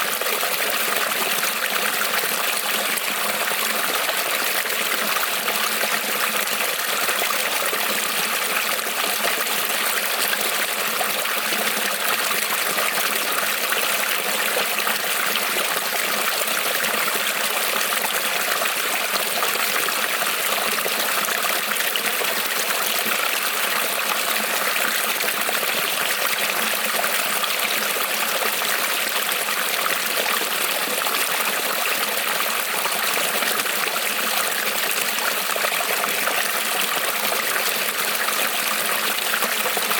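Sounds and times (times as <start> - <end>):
creek water trickling over stones: 0.0 - 39.9.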